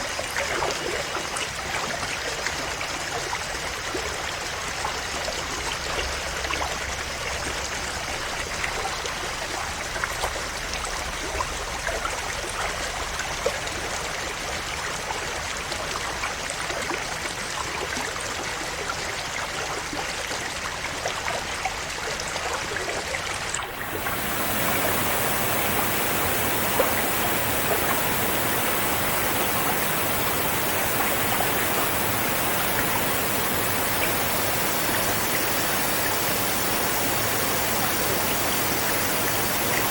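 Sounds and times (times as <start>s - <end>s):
rush of water: 23.4s - 39.9s
river babbling over stones: 23.6s - 39.9s
small splashes: 23.6s - 39.9s.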